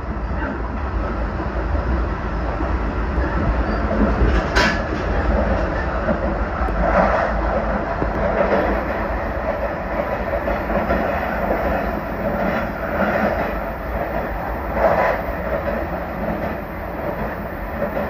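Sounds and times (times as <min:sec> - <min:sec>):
train wheels rumbling on rails: 0:00.0 - 0:18.0
train clatter: 0:00.3 - 0:18.0.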